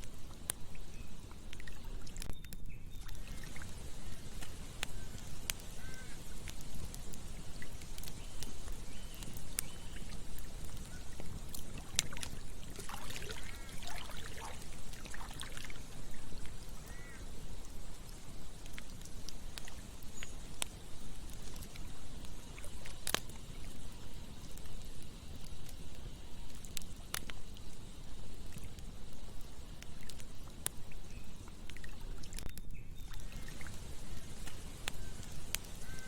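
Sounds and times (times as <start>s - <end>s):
campfire crackling: 0.0s - 36.0s
running water rushing: 3.1s - 20.6s
short animal calls: 5.7s - 6.2s.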